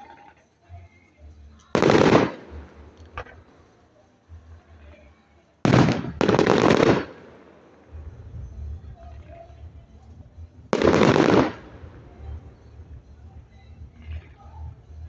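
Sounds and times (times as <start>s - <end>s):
fireworks bangs: 1.8s - 3.4s, 5.6s - 8.0s, 10.7s - 12.0s.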